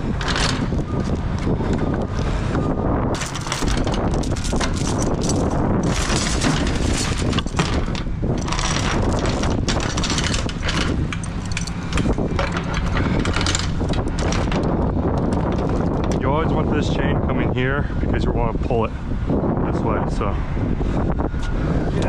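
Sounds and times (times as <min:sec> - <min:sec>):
wind buffeting microphone: 0:00.0 - 0:22.0
steel chains clanking: 0:00.1 - 0:01.1, 0:03.2 - 0:16.2.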